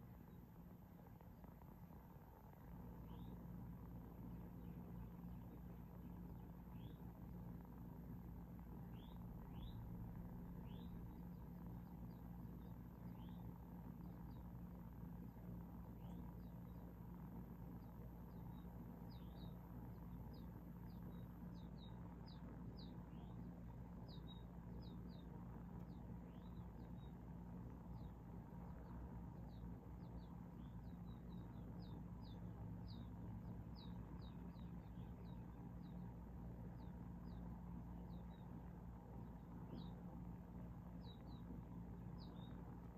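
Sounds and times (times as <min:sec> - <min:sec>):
faint low hum: 0:00.0 - 0:42.9
small birds cheeping: 0:00.0 - 0:42.9.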